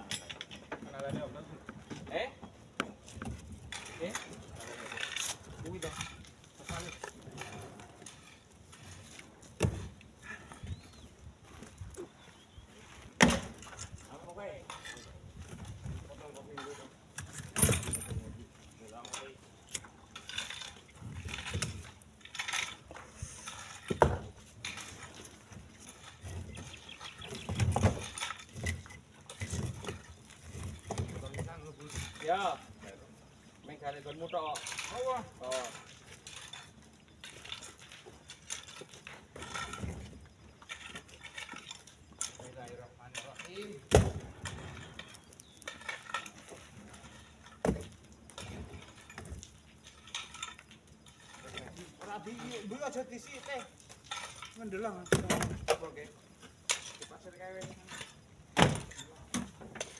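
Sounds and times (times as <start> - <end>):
stones dropped into truck bed: 23.8 - 24.9, 27.2 - 32.6, 47.4 - 50.6, 53.6 - 59.9.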